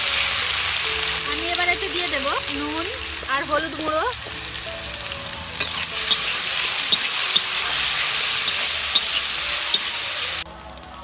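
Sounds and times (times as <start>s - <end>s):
potatoes sizzling in hot oil: 0.0s - 10.4s
spatula tapping and scraping pan: 5.6s - 9.9s.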